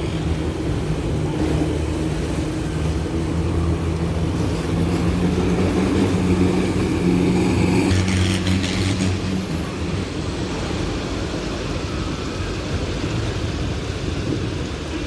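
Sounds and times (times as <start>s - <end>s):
vehicle engine droning: 0.0s - 11.8s.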